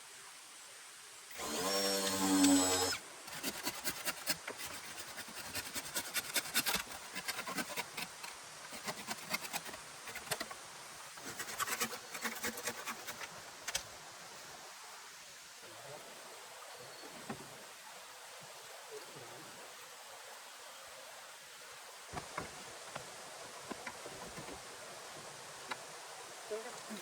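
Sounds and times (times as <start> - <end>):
small motor running: 1.3 - 3.0.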